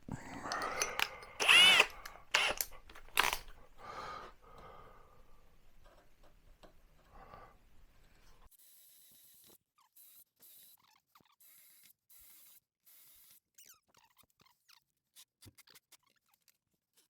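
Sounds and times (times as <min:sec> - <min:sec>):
faint clicks and handling: 0:00.0 - 0:03.6
cordless drill bursts: 0:00.1 - 0:03.6.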